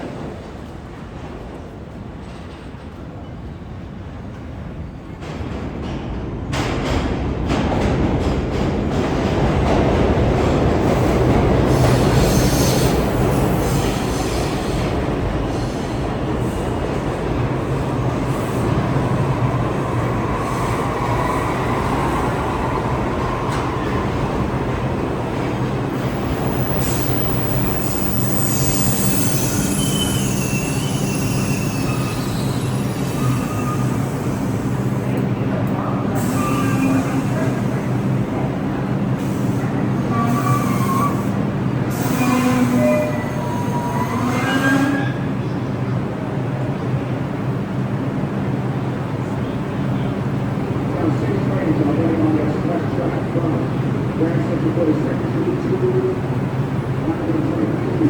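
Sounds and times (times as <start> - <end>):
subway train on rails: 0.0 - 58.0
metallic wheel squeals: 27.8 - 34.1.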